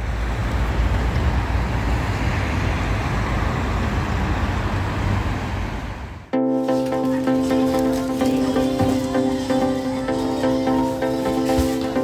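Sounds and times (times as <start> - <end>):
road traffic rumble: 0.0 - 6.3.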